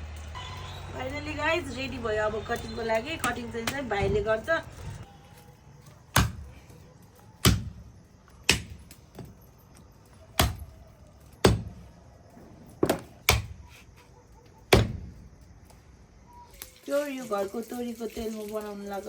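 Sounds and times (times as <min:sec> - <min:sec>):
blade chopping on a board: 0:06.1 - 0:06.5, 0:07.4 - 0:07.8, 0:08.4 - 0:08.9, 0:10.4 - 0:10.6, 0:11.4 - 0:11.8, 0:12.8 - 0:13.8, 0:14.7 - 0:15.1.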